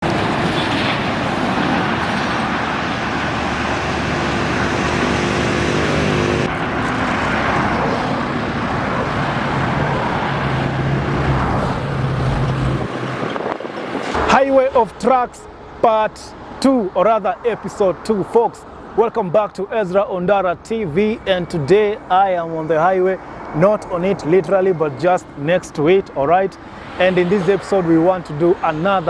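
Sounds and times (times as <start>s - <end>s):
truck engines droning: 0.0s - 29.0s
tyre and road noise: 0.0s - 29.0s.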